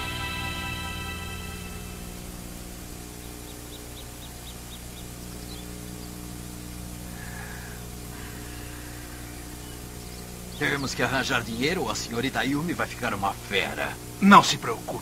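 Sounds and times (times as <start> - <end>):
steady low hum: 0.0 - 15.0
small bird chirping: 3.2 - 12.8.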